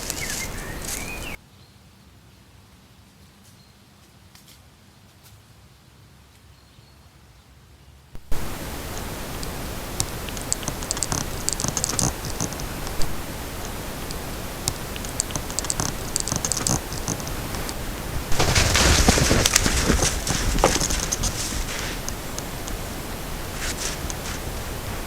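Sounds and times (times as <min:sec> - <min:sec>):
faint ticks: 0:00.0 - 0:01.4, 0:08.2 - 0:25.0
loud rustling and crackling: 0:00.0 - 0:01.4, 0:08.2 - 0:25.0.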